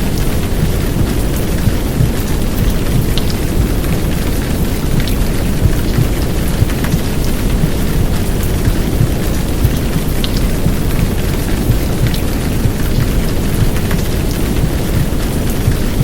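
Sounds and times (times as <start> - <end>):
heavy rain downpour: 0.0 - 16.0
low muffled womb rumble: 0.0 - 16.0
sharp raindrop ticks: 0.0 - 16.0.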